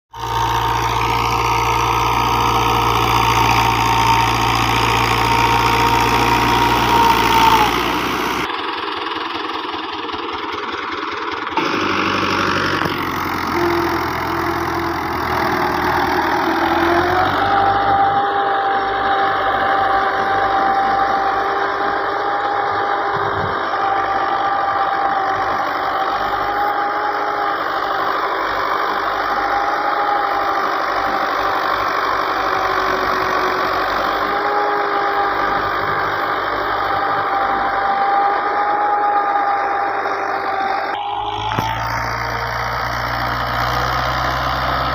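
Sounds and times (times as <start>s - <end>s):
tractor diesel engine running: 0.1s - 44.9s.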